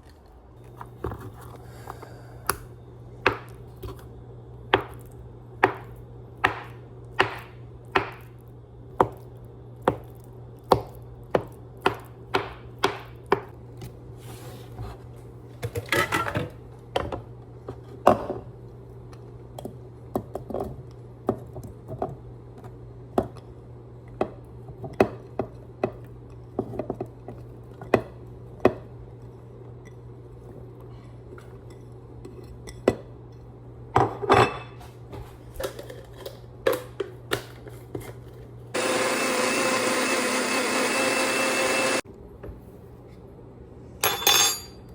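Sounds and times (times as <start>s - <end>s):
knife chopping on cutting board: 4.8s - 8.3s, 10.7s - 13.5s.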